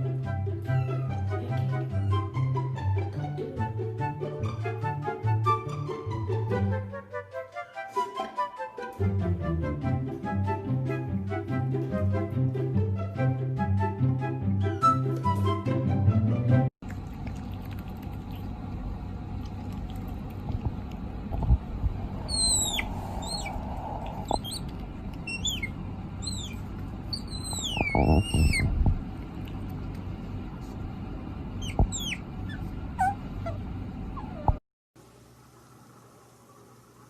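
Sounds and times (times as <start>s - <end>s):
low thumps: 20.4s - 25.2s, 27.5s - 29.1s, 31.7s - 32.0s
small animal squeaky calls: 22.2s - 28.8s, 31.6s - 33.6s, 34.2s - 34.6s.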